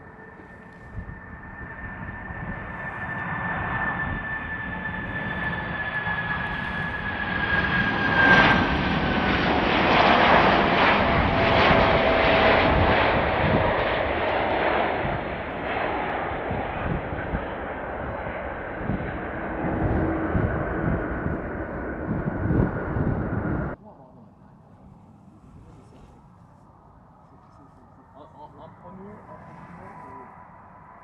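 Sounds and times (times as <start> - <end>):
jet engines roaring: 0.0 - 23.8.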